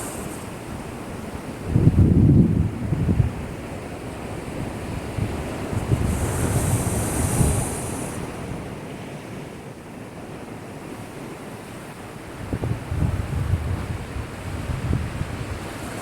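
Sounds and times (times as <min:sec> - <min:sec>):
rush of water: 0:00.0 - 0:16.0.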